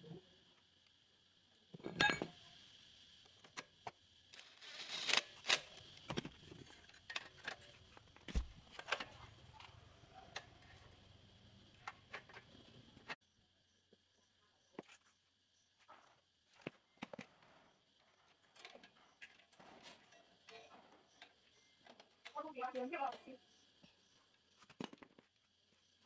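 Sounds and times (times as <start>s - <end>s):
small metal objects clinking: 4.3s - 5.5s.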